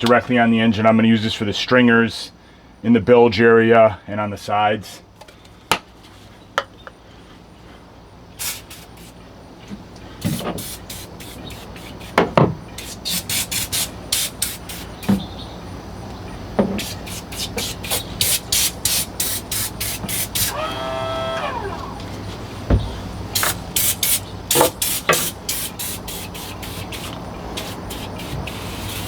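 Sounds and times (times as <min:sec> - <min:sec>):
aerosol spray bursts: 0:08.4 - 0:09.2, 0:10.3 - 0:12.0, 0:12.8 - 0:15.0, 0:16.8 - 0:21.9, 0:23.4 - 0:29.0
knocks: 0:22.7 - 0:23.0.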